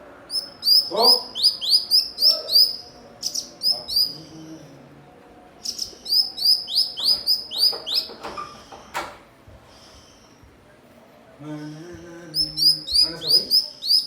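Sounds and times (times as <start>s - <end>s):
bird sharp repeated chirps: 0.3s - 4.2s, 5.6s - 8.2s, 12.4s - 14.0s.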